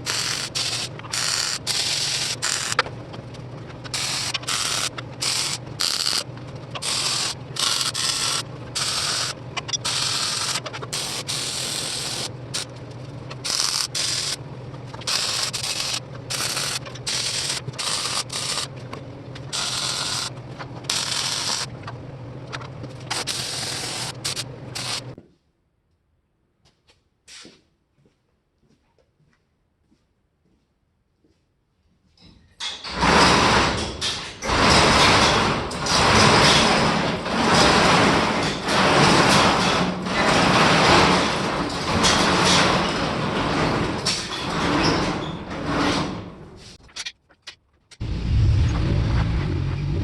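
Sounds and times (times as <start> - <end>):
welder crackling and hissing: 0.0 - 2.8, 3.9 - 6.2, 6.8 - 12.7, 13.4 - 14.4, 15.0 - 18.7, 19.5 - 21.7, 23.1 - 25.1.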